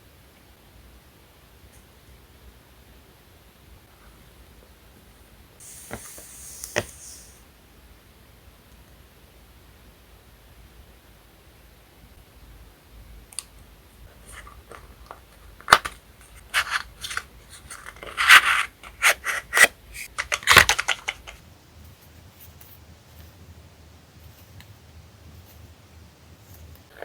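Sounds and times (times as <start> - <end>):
paper crinkling and rustling: 14.1 - 21.4.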